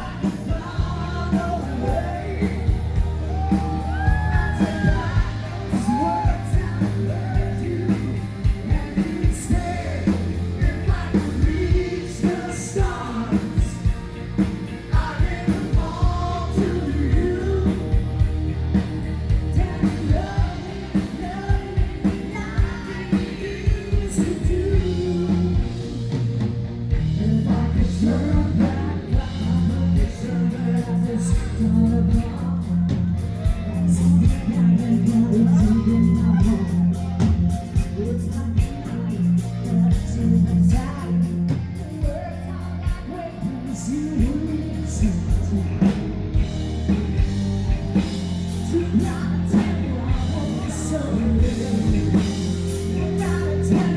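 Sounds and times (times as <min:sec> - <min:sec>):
person singing: 0:00.0 - 0:14.1, 0:14.9 - 0:18.3, 0:19.4 - 0:25.9, 0:27.1 - 0:46.0, 0:46.9 - 0:53.9
live rock band playing: 0:00.0 - 0:53.9.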